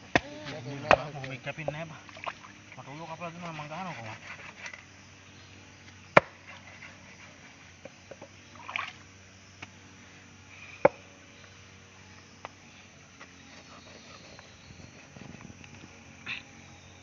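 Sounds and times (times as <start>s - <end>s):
light knocks and scrapes: 13.2s - 15.9s.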